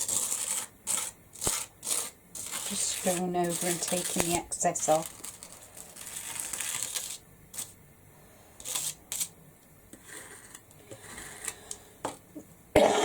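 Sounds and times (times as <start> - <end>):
spatula scraping stencil: 0.0 - 7.8, 8.6 - 9.3, 9.9 - 11.8.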